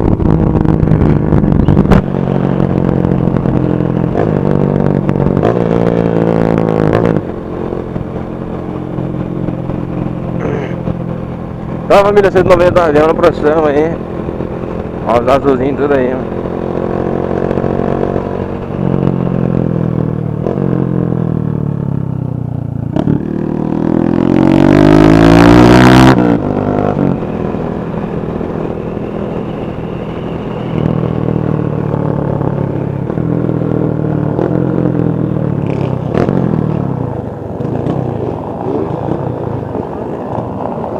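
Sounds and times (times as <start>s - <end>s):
motorcycle engines revving: 0.0s - 40.9s.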